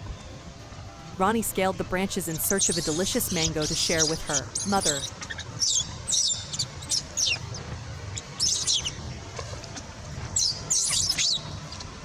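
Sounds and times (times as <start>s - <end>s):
low steady hum: 0.0s - 12.0s
animal chirps and squeaks: 2.5s - 7.4s.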